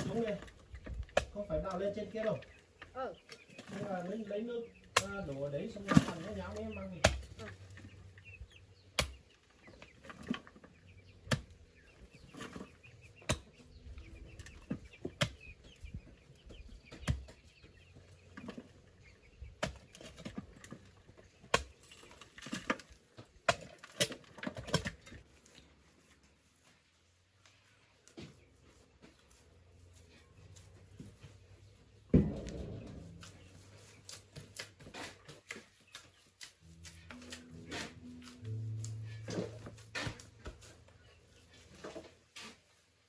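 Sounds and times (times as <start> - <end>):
digging tool thudding into earth: 32.2 - 34.0.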